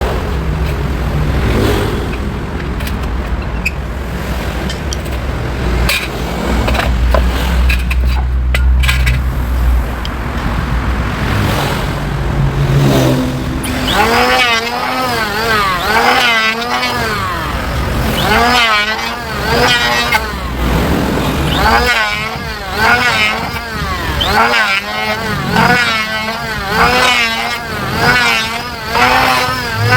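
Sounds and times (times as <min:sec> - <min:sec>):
electric planer cutting wood: 0:13.6 - 0:29.9.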